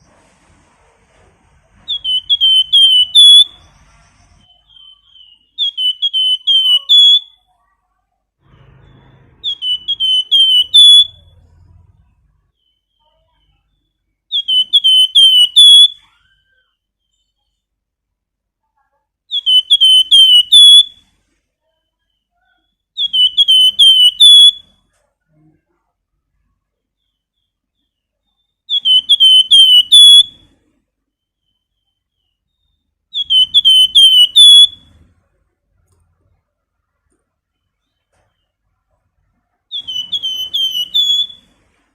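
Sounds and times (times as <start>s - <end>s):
songbird whistled phrase: 1.9s - 3.7s, 4.4s - 7.5s, 8.6s - 11.4s, 14.3s - 17.3s, 28.7s - 30.3s, 33.1s - 34.9s, 39.7s - 41.4s.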